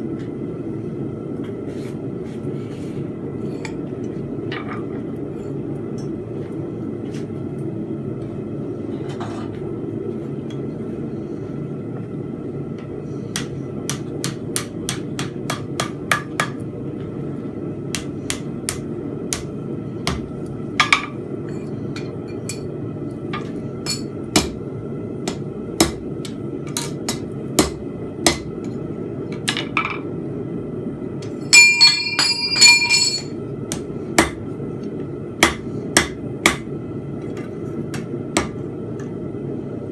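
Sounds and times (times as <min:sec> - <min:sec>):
hammer striking steel on anvil: 0:23.4 - 0:24.6, 0:31.2 - 0:34.4, 0:35.4 - 0:36.7.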